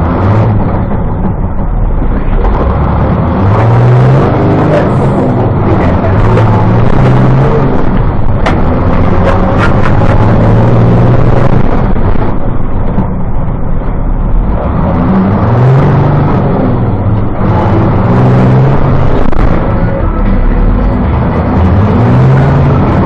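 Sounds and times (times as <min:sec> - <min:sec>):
diesel engine revving: 0:00.0 - 0:23.0.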